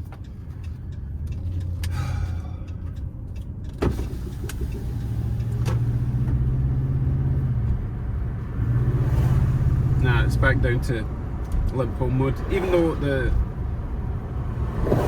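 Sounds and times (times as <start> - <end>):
engine running rough: 0.0 - 12.1.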